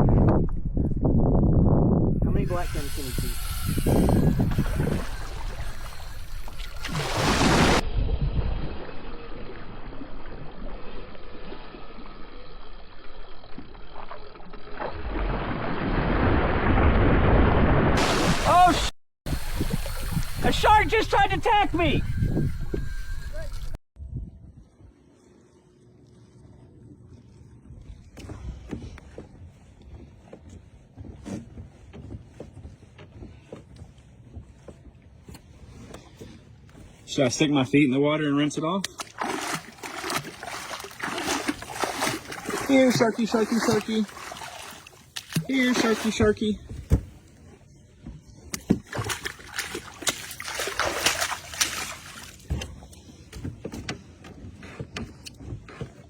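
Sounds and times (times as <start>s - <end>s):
wind buffeting microphone: 0.0s - 6.4s, 19.3s - 25.0s
water sloshing around kayak: 2.3s - 7.9s, 18.0s - 23.8s, 38.9s - 56.0s.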